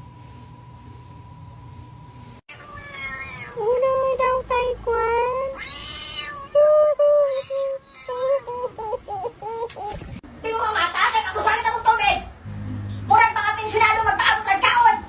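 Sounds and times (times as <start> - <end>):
low hum: 0.0 - 2.4, 12.3 - 14.3
cat meowing: 2.5 - 3.6, 5.5 - 6.6.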